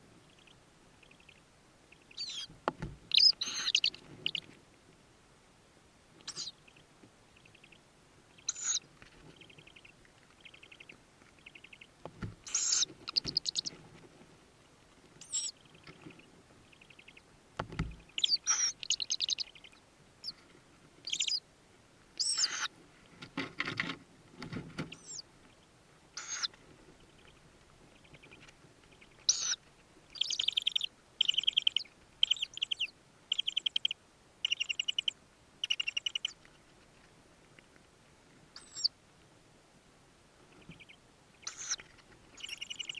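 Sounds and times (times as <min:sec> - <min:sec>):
owl chicks chirping and calling: 0:00.1 - 0:04.6, 0:06.2 - 0:13.8, 0:15.2 - 0:21.4, 0:22.2 - 0:22.7, 0:24.8 - 0:36.5, 0:38.5 - 0:39.0, 0:40.5 - 0:42.9.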